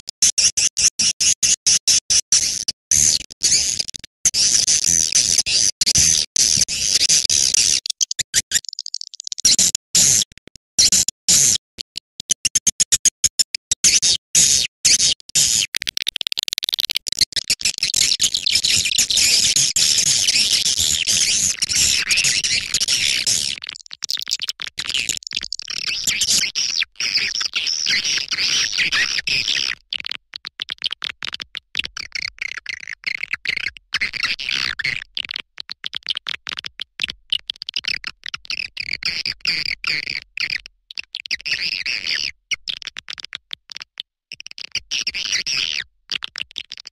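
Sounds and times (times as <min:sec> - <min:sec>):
recorded swiftlet twittering: 0:07.5 - 0:09.6.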